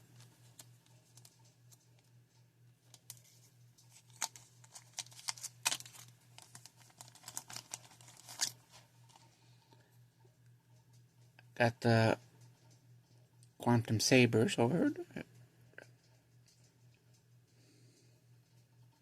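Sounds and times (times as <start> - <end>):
faint electrical hum: 0.0 - 19.0
plastic bag rustling: 3.0 - 9.3.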